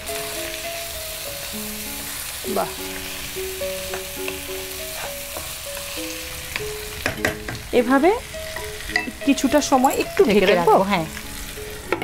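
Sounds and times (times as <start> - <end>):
meat sizzling in hot oil: 0.0 - 12.0
soft background music: 0.0 - 12.0
wooden spatula scraping a wok: 2.0 - 6.0.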